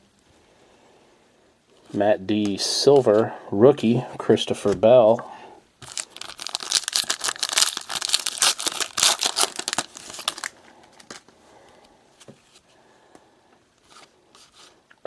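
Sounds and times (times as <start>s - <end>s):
foil wrapper tearing and crinkling: 5.8s - 11.3s.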